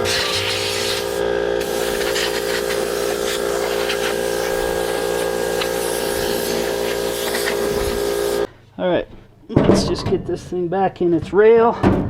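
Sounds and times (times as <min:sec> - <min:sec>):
compressed air hissing: 0:00.0 - 0:08.5
steady hum: 0:00.0 - 0:08.5.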